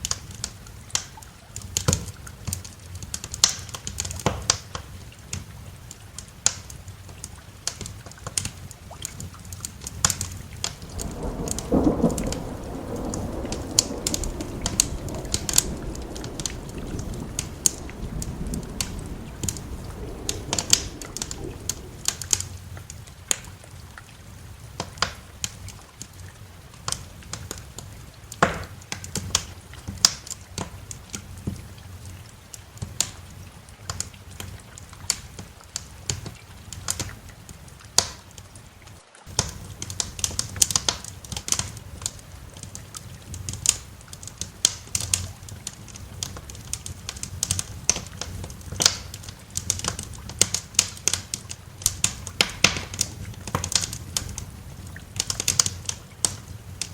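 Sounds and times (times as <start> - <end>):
fire pops and snaps: 0.0 - 23.6, 24.7 - 26.1, 38.0 - 38.2, 39.3 - 56.9
low fire rumble: 0.0 - 38.1, 39.3 - 56.9
wood fire crackling: 0.0 - 56.9.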